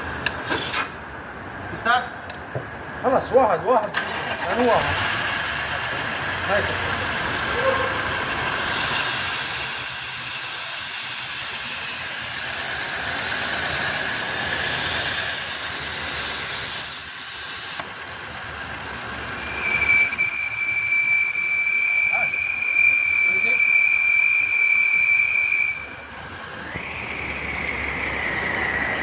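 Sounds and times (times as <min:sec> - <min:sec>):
car engine running: 0:04.8 - 0:09.2, 0:17.8 - 0:19.6
high-pitched hissing whistle: 0:19.3 - 0:29.0.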